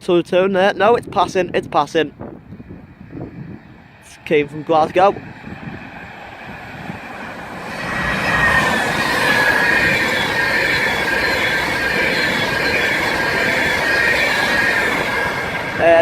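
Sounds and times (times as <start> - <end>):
electric train rumbling: 0.5 - 16.0
train wheels squealing: 3.2 - 16.0.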